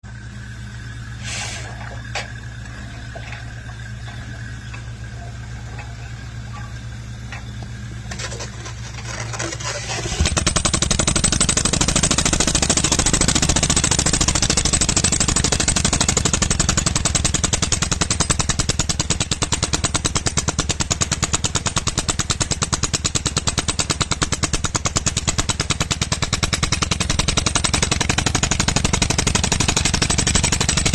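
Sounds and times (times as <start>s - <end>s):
engine running low: 0.0s - 15.9s
rock drill hammering: 10.0s - 30.9s.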